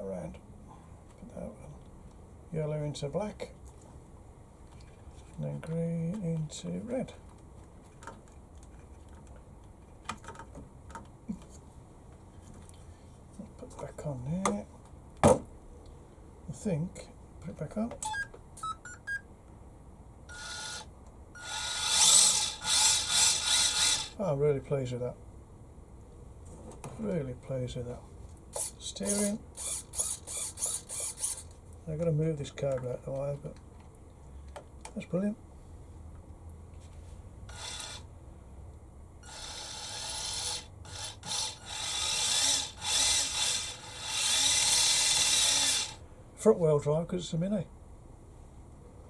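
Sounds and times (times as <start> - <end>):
toy car electric motor whirring: 20.3 - 24.2, 28.6 - 31.6, 37.5 - 38.1, 39.2 - 46.0.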